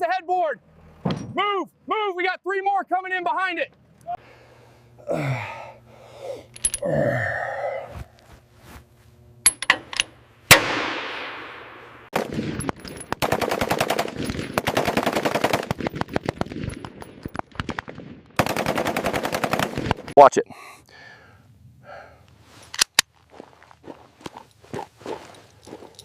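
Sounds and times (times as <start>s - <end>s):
single gunshots: 10.5s - 13.4s
rapid automatic gunfire: 13.2s - 16.7s, 17.6s - 20.1s.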